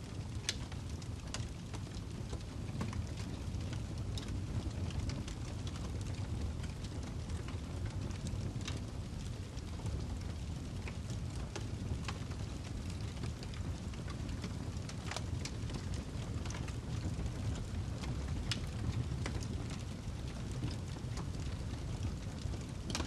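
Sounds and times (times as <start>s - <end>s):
fire crackling and popping: 0.0s - 23.0s.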